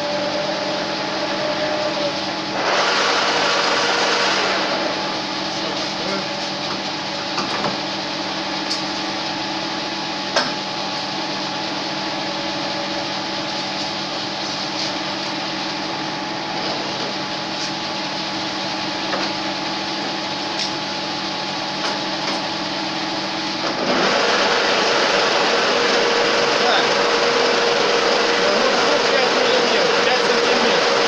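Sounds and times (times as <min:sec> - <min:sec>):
metal lathe drilling: 0:00.0 - 0:07.4, 0:22.5 - 0:31.0.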